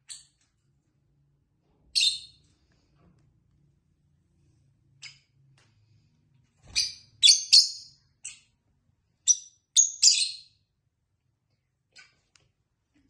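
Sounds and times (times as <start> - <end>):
lovebirds chirping: 6.7 - 8.6, 9.2 - 10.7.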